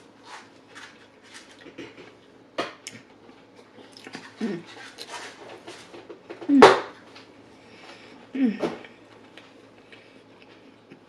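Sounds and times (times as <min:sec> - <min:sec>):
person chewing: 0:03.7 - 0:04.4.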